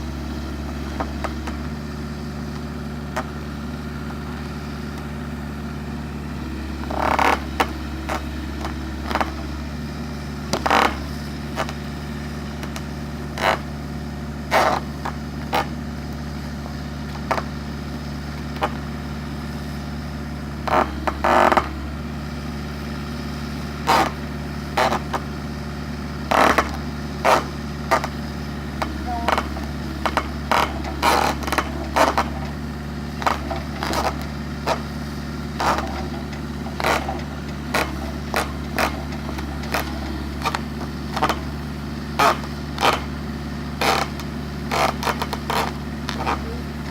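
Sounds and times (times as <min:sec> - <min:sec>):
excavator diesel engine idling: 0:00.0 - 0:46.9
sharp scrapes and knocks: 0:23.8 - 0:24.2, 0:24.8 - 0:25.2, 0:29.2 - 0:32.5, 0:33.2 - 0:34.8, 0:35.6 - 0:41.4, 0:43.8 - 0:46.9.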